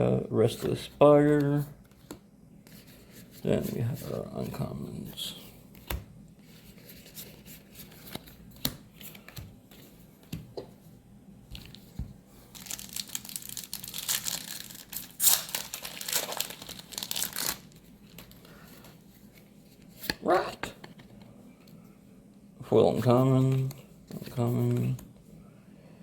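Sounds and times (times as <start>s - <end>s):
packaging crinkling: 12.5s - 18.7s.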